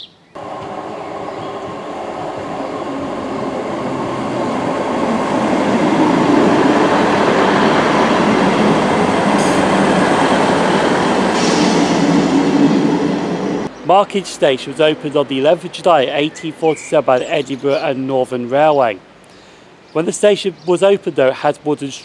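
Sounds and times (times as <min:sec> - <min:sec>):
diesel train passing: 0:00.4 - 0:18.0.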